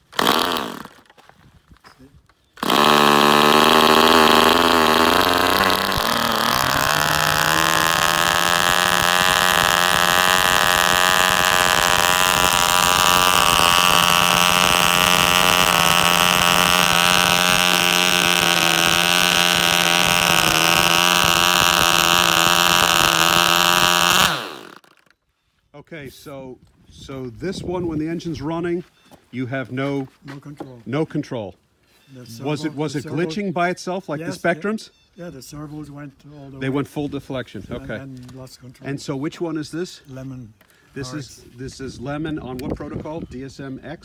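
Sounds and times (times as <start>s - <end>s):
small gas engine running: 0.0s - 1.0s, 2.6s - 25.1s.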